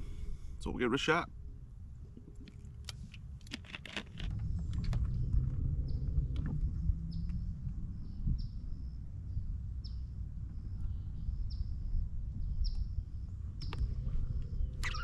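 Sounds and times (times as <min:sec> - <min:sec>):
low rumble: 0:04.1 - 0:15.0
bird calling: 0:14.7 - 0:15.0.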